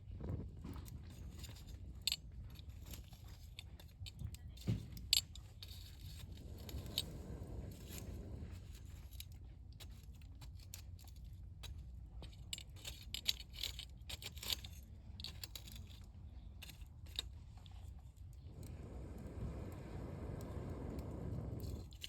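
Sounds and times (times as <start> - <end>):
low fire rumble: 0.0 - 2.8, 3.5 - 9.9, 16.1 - 22.0
campfire crackling and popping: 18.5 - 22.0.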